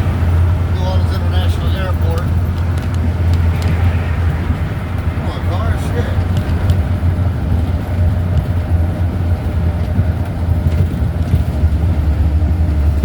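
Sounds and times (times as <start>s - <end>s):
wind buffeting microphone: 0.0s - 13.0s
heavy rain hissing: 5.1s - 6.6s.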